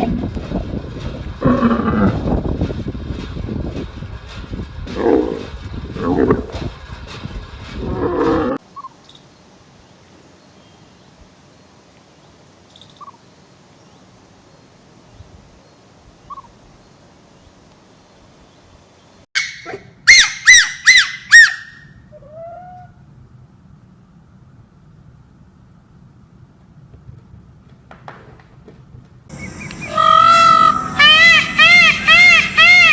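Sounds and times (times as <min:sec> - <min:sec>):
bird squawking loudly: 0:29.3 - 0:32.9
faint bird chirps: 0:29.3 - 0:32.9
noisy sound cutting off: 0:29.3 - 0:32.9.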